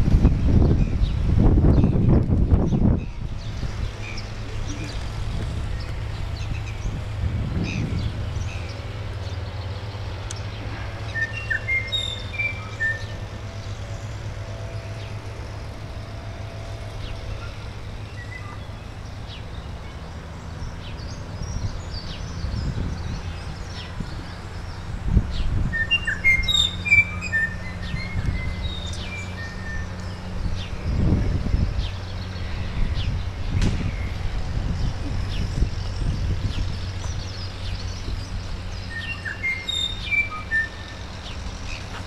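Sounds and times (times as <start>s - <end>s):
steady low rumble: 0.0s - 11.2s, 26.7s - 39.0s
songbirds chirping: 0.3s - 42.0s.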